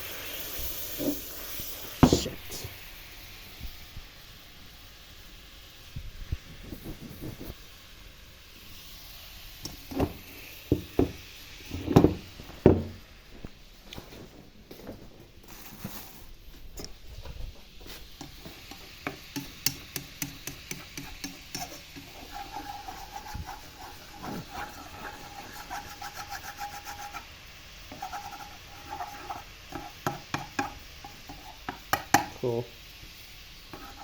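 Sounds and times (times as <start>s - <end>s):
utensil scraping a pan: 18.2s - 27.3s, 27.9s - 32.0s, 33.7s - 34.0s.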